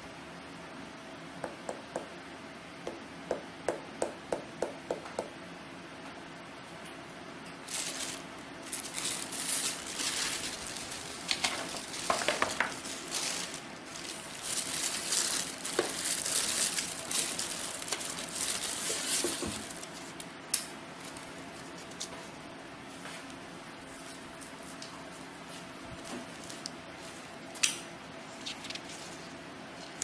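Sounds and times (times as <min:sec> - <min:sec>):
packaging rustling and crinkling: 0:07.6 - 0:20.2, 0:21.0 - 0:22.1.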